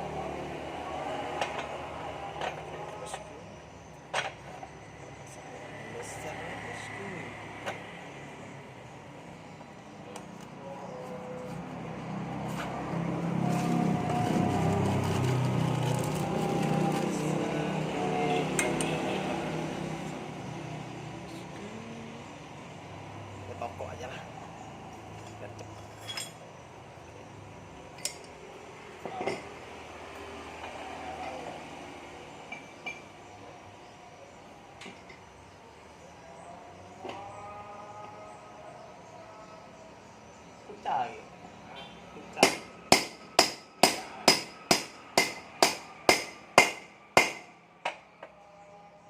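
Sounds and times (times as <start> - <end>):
low workshop hum: 0.0 - 40.0, 42.3 - 49.0
vehicle engine running: 9.6 - 24.1
metallic clinks of tools: 25.3 - 26.5.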